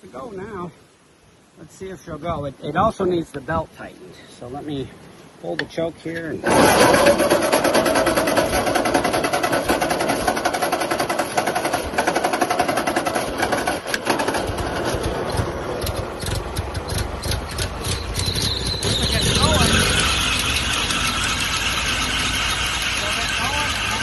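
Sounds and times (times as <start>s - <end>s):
tractor starter cranking: 6.4s - 24.0s
tractor engine running: 6.5s - 24.0s.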